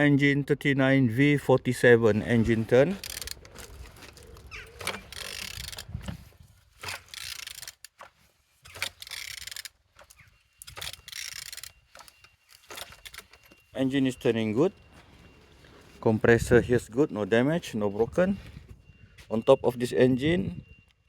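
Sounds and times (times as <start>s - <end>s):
engine turned over by hand: 3.0s - 9.8s.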